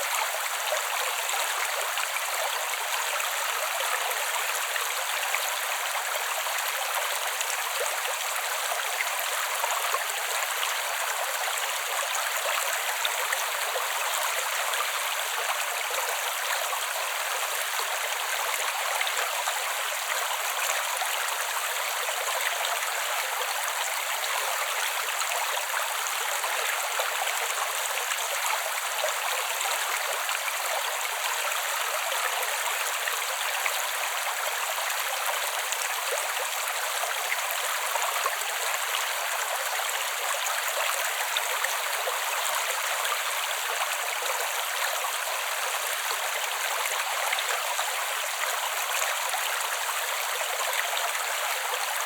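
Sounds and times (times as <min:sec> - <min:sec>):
creek babbling over stones: 0:00.0 - 0:52.0.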